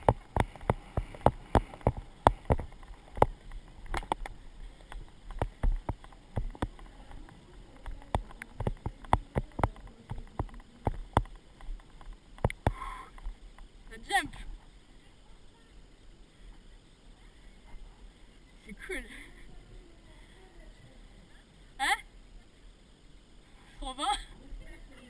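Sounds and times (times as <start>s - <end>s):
sharp knocks and clicks: 0.0s - 13.7s.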